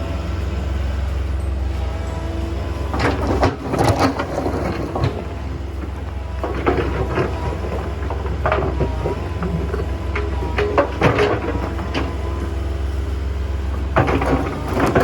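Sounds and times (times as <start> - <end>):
excavator diesel engine running: 0.0 - 15.0
stones clattering and knocking: 2.9 - 12.4.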